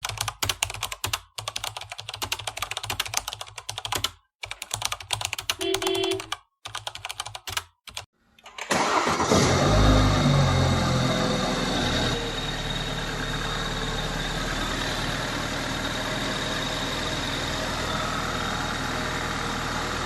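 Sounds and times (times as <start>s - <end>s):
keyboard typing clicks: 0.0s - 8.1s
brief beep: 5.6s - 6.3s
car engine starting: 8.4s - 20.0s.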